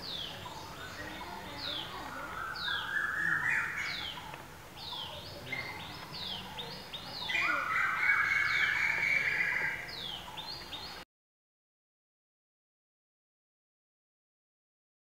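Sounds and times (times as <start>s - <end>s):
songbirds singing: 0.0s - 11.0s.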